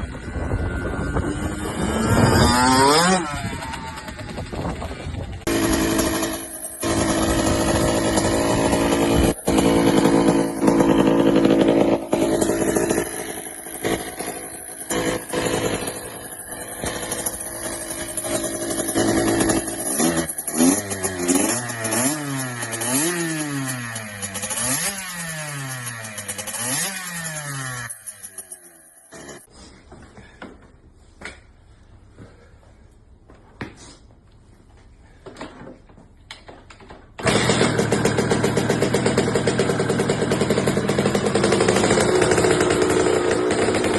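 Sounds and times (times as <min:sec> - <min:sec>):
dirt bike engine revving: 0:00.0 - 0:28.5, 0:37.2 - 0:43.9.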